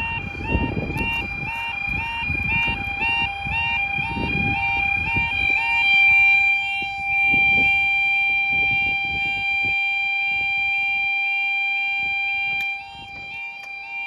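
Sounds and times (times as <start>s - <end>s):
low rumbling noise: 0.0s - 7.9s
level crossing alarm: 0.0s - 14.0s.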